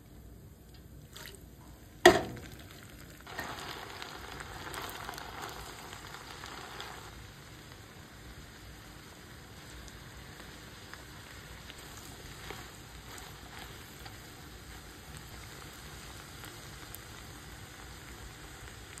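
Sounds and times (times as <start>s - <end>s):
small pops and crackles: 0.6s - 19.0s
meat sizzling in a pan: 2.1s - 19.0s.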